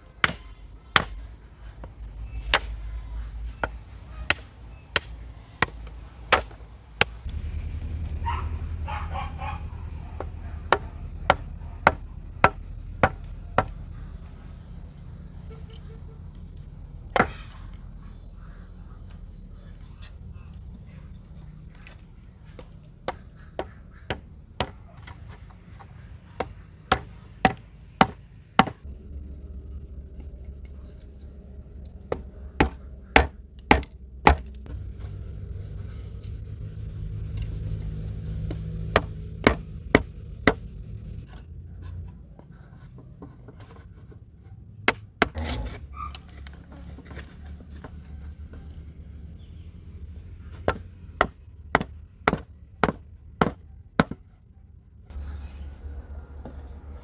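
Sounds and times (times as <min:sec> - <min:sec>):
blade chopping wood: 0:00.2 - 0:01.2, 0:03.6 - 0:07.4, 0:10.2 - 0:13.8, 0:17.1 - 0:17.6, 0:22.6 - 0:25.2, 0:25.8 - 0:28.8, 0:32.1 - 0:34.6, 0:38.3 - 0:40.7, 0:50.5 - 0:54.2.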